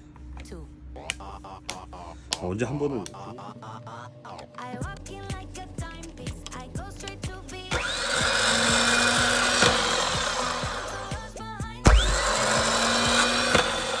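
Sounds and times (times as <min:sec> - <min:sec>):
starter motor whining: 0:05.1 - 0:14.0.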